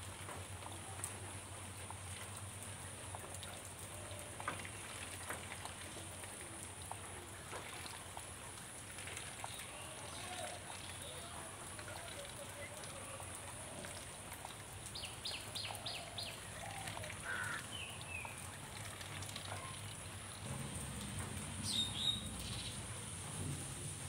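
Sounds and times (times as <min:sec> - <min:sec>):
outdoor background hiss: 0:00.0 - 0:24.0
bird chirps: 0:21.6 - 0:22.8.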